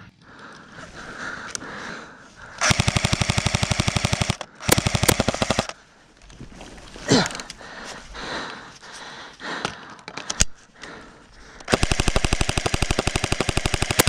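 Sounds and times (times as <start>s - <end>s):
airsoft gun full-auto bursts: 2.6s - 5.8s, 11.6s - 14.0s.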